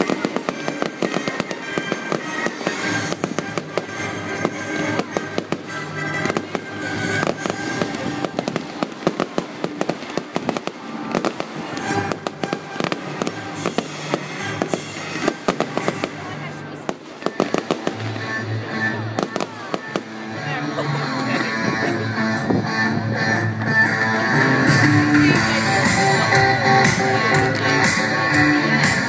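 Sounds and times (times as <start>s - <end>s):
fireworks bangs and crackling: 0.0s - 29.0s
music over loudspeakers: 0.0s - 29.0s.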